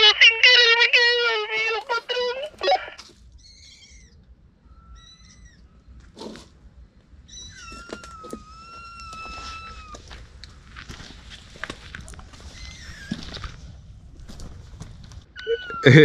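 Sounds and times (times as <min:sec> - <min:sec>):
kittens mewing: 0:00.0 - 0:05.7, 0:07.3 - 0:10.1.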